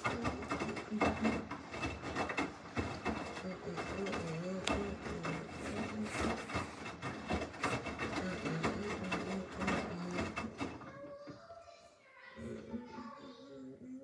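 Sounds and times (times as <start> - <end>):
washing machine motor whirring: 0.0 - 11.5.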